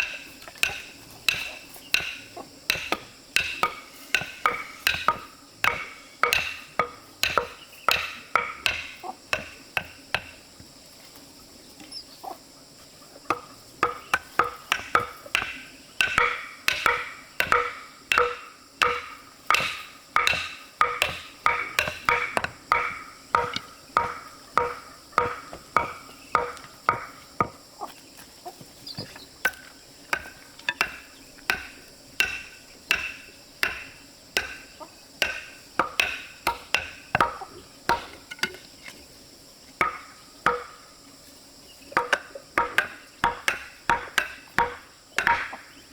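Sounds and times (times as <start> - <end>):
knife chopping on a board: 0.6 - 10.3, 13.3 - 27.6, 35.2 - 38.6.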